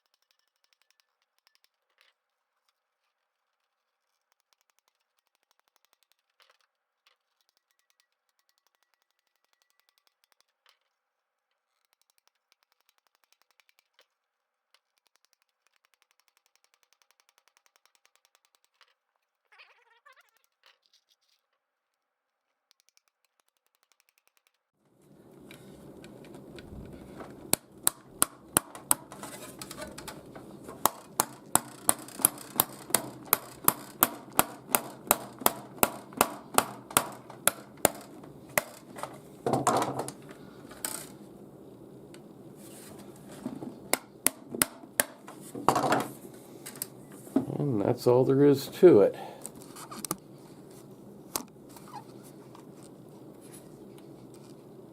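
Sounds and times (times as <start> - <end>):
low background hum: 24.8 - 54.9
hammer tapping nails: 25.2 - 41.2, 43.1 - 47.6.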